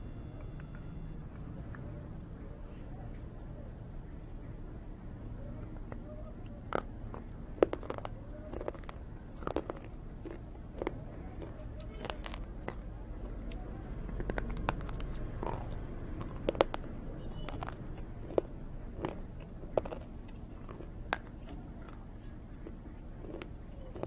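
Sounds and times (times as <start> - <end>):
person crunching and chewing: 6.5 - 24.0.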